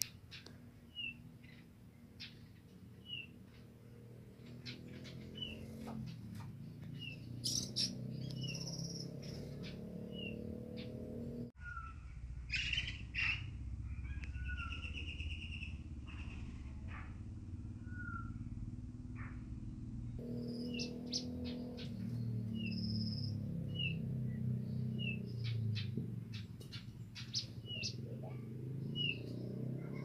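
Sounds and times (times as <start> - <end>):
bird chirping: 0.0 - 17.1, 17.7 - 18.5, 20.1 - 30.0
buzzy rattling bird trill: 7.0 - 9.8
low background rumble: 11.4 - 28.5.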